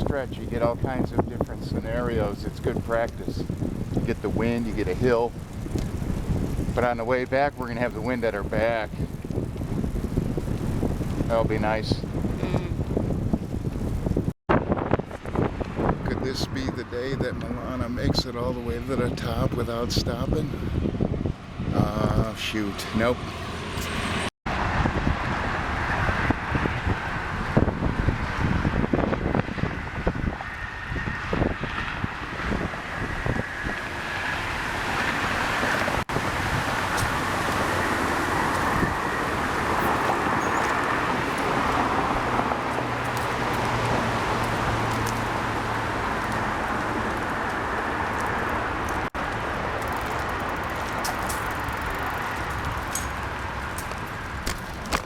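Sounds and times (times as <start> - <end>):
wind buffeting microphone: 0.0 - 55.0
road traffic roar: 20.6 - 55.0.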